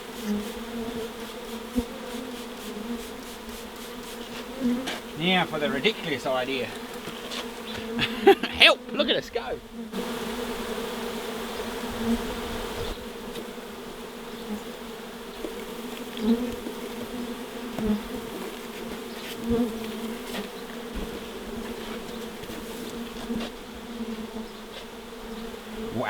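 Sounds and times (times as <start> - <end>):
single bee buzzing close: 0.0 - 26.0
swarm of bees humming: 0.0 - 26.0.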